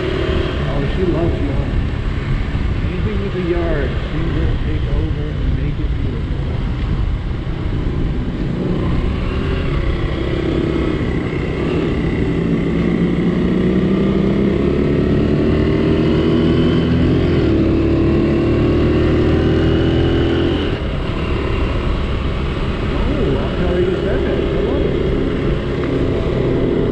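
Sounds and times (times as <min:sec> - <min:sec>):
motorcycle engine under throttle: 0:08.4 - 0:26.9.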